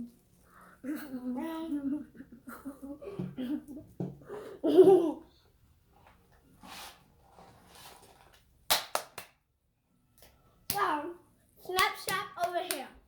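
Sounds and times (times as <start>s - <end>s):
child laughing and babbling: 0.8s - 3.6s, 4.6s - 5.2s.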